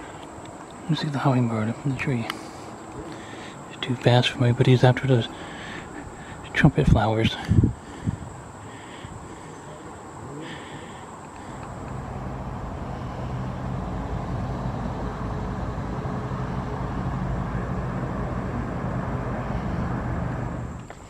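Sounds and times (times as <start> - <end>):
road noise: 0.0 - 21.0
vehicle engine hum: 7.4 - 21.0.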